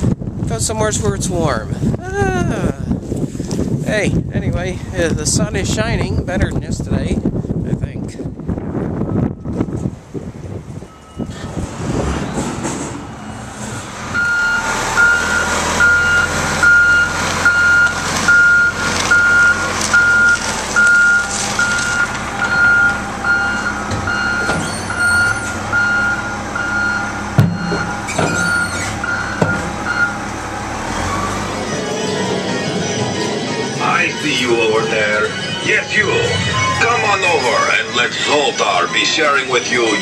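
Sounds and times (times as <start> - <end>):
reversing alarm beeping: 10.8 - 11.5, 14.1 - 40.0
sharp knocks: 27.4 - 28.5.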